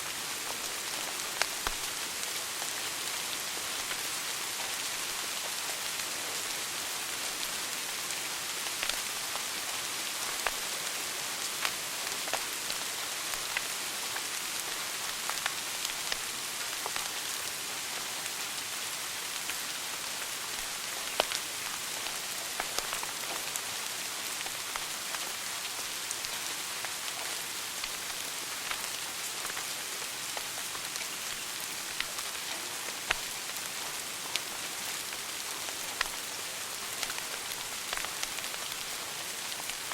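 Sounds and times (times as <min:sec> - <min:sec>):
wood fire crackling and popping: 0:37.0 - 0:39.0.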